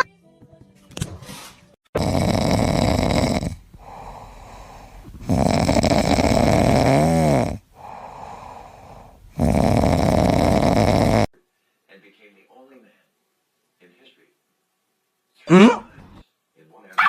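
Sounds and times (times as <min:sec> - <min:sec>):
person snoring: 0:02.0 - 0:11.3.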